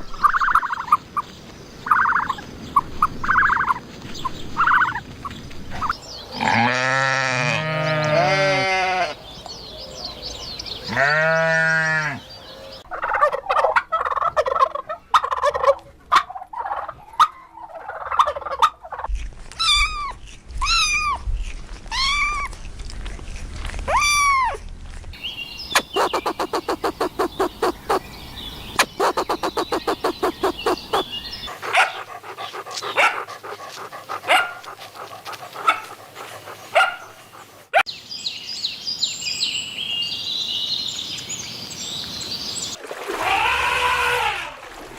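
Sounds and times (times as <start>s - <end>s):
domestic fowl calling: 25.8s - 28.1s, 28.7s - 37.5s.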